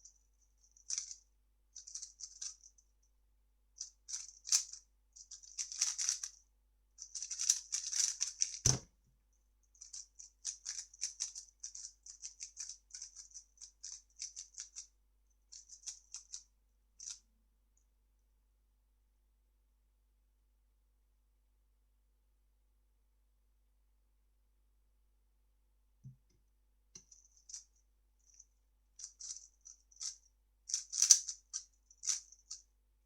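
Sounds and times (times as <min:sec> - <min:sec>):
puzzle cube plastic clicking: 0:30.7 - 0:31.4.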